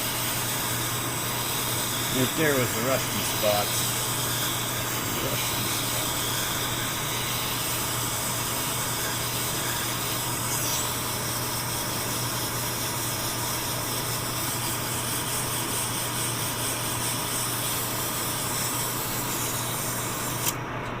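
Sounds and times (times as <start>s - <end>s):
machine motor humming: 0.0s - 12.3s.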